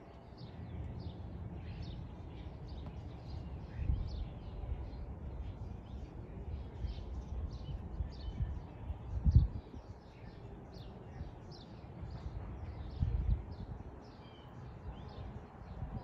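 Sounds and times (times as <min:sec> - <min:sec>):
songbirds chirping: 0:00.0 - 0:16.0
steady low rumble: 0:11.1 - 0:14.0.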